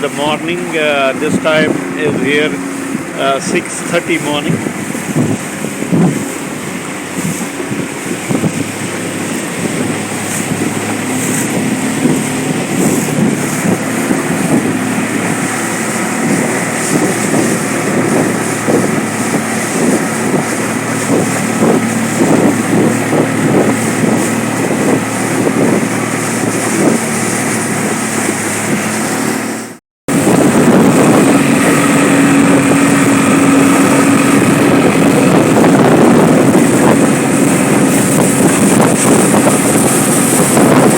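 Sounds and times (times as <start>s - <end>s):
outboard motor running: 0.0s - 40.9s
wind buffeting microphone: 0.0s - 40.9s.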